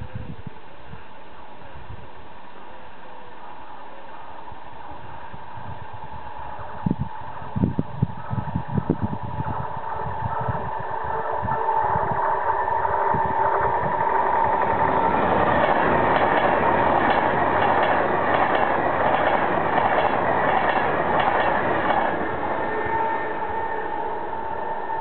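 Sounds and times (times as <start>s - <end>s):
train passing at speed: 0.0s - 25.0s
wheels clicking over rails: 13.9s - 22.7s.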